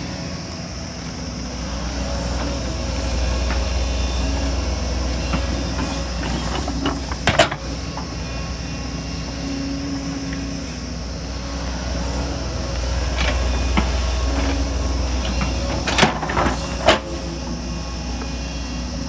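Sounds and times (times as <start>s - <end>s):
excavator diesel engine running: 0.0s - 19.0s
metallic clanks and scrapes: 5.0s - 8.2s, 12.7s - 17.4s.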